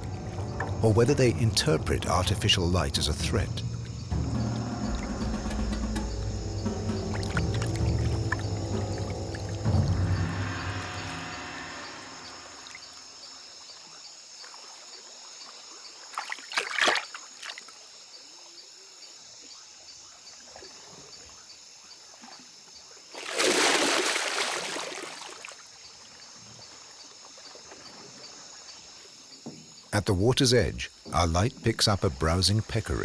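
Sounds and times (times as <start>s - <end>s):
water splashes: 0.0s - 13.1s, 15.8s - 17.8s, 22.1s - 28.7s
insects chirping at night: 0.0s - 33.0s.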